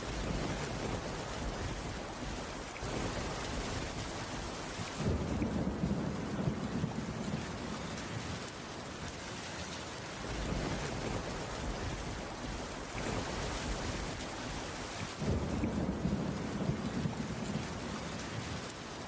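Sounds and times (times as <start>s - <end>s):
rain on a wooden roof: 0.0s - 19.0s.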